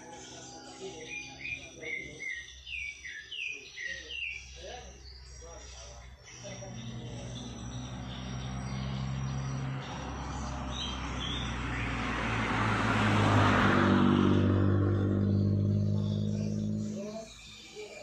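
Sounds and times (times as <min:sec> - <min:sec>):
road noise: 0:00.0 - 0:02.7, 0:04.5 - 0:18.0
vehicle engine drone: 0:05.4 - 0:17.6.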